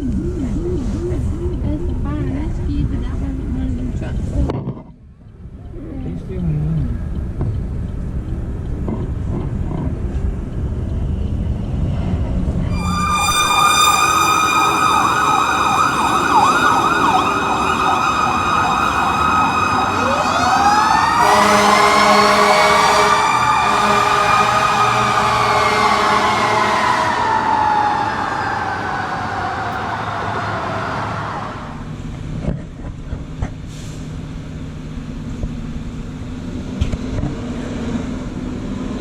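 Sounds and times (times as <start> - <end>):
low traffic rumble: 0.0 - 39.0
electronic siren yelp: 12.7 - 31.8
siren winding up to wail: 12.7 - 31.8.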